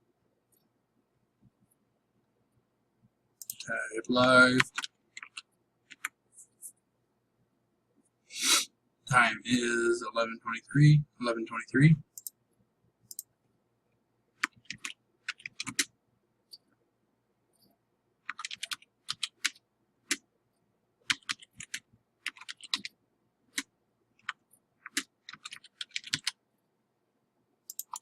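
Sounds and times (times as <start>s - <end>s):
computer keyboard typing: 4.6s - 6.2s, 14.4s - 15.9s, 18.2s - 20.2s, 21.1s - 22.9s, 23.5s - 26.4s, 27.7s - 28.0s.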